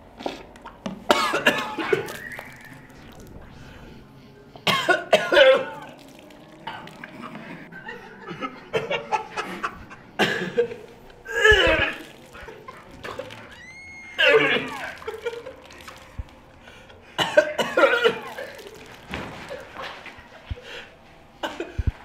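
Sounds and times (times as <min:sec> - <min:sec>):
man retching and vomiting: 0:01.0 - 0:03.9, 0:04.6 - 0:20.6
man coughing: 0:01.1 - 0:02.2, 0:04.6 - 0:05.9, 0:07.8 - 0:13.4, 0:17.2 - 0:20.0.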